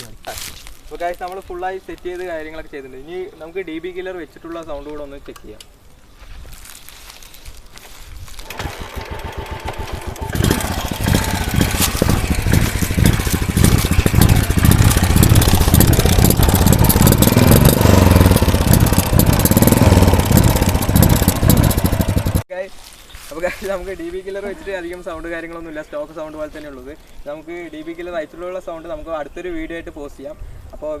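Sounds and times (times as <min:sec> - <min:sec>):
motorcycle engine thumping: 0:08.4 - 0:22.4.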